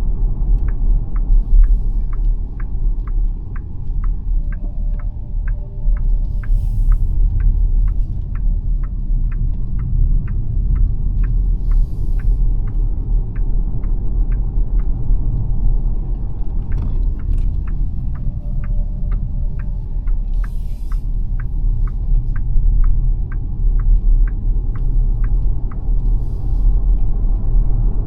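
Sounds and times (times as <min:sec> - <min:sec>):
road and tyre rumble: 0:00.0 - 0:28.0
turn signal ticking: 0:00.0 - 0:28.0.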